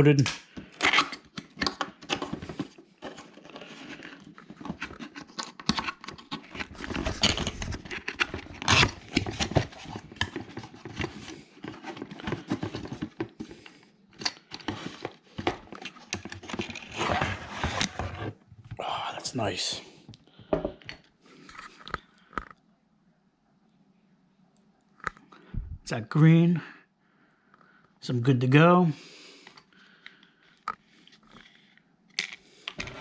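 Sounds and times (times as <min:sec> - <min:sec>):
cardboard packaging rustling: 0:01.8 - 0:13.8.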